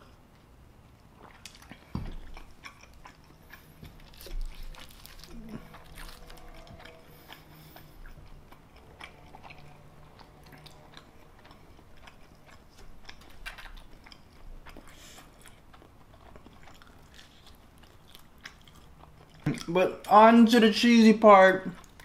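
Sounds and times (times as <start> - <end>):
wet chewing and mouth smacks: 0.0 - 19.8.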